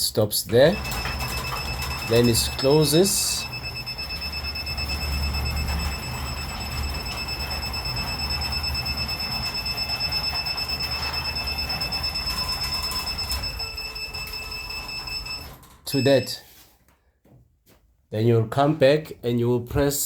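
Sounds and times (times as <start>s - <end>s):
garage door motor whining: 0.5s - 16.0s.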